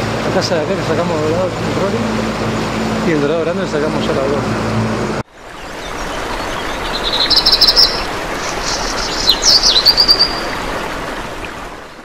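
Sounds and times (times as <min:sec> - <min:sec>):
outdoor ambience hiss: 0:00.0 - 0:12.0
birds chirping and trilling: 0:05.4 - 0:11.6.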